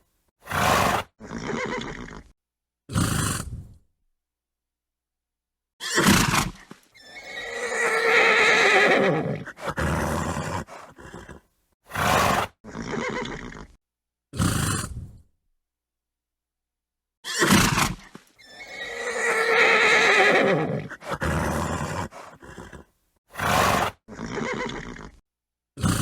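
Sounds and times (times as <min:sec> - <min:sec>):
horse snorting: 0:00.4 - 0:02.3, 0:02.9 - 0:03.8, 0:05.9 - 0:13.8, 0:14.4 - 0:15.2, 0:17.3 - 0:25.2, 0:25.8 - 0:26.0
horse whinnying: 0:00.5 - 0:02.3, 0:05.8 - 0:13.8, 0:17.2 - 0:25.2.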